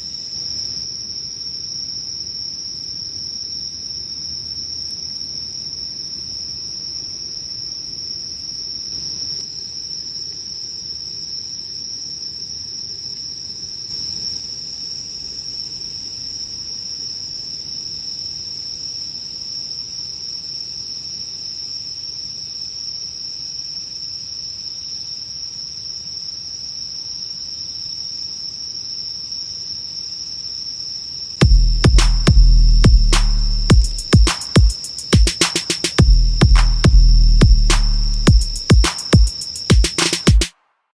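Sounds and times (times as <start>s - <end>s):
insects trilling: 0.0s - 40.4s
faint low hiss: 31.4s - 40.2s.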